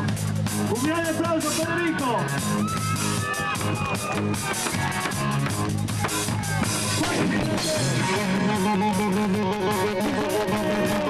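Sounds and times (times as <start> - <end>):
drum kit: 0.0 - 11.0
live rock band: 0.0 - 11.0
electric guitar: 2.2 - 11.0.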